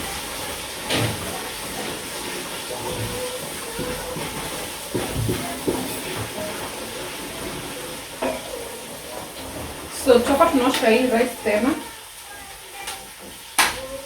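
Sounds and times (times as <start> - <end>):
food hissing in a pot: 0.0 - 14.0
kitchen utensils knocking: 0.7 - 12.0.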